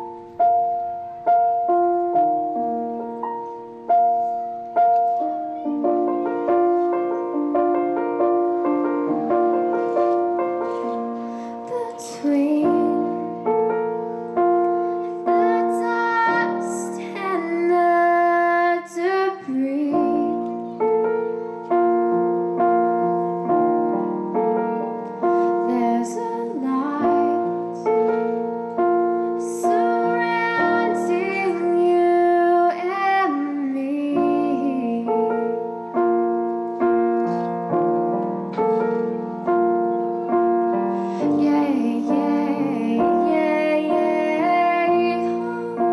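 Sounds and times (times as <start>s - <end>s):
piano chords: 0.0s - 45.9s
woman singing: 11.4s - 14.1s, 15.2s - 20.7s, 25.6s - 28.1s, 29.4s - 35.7s, 41.2s - 45.9s.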